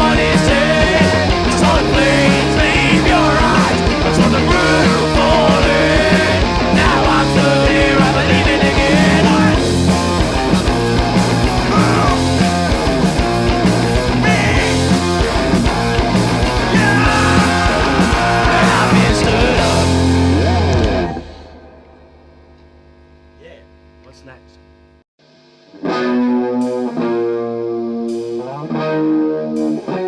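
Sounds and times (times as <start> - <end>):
steady drum beat: 0.0 - 21.1
bass guitar: 0.0 - 22.0
electric guitars: 0.0 - 22.1, 25.3 - 30.0.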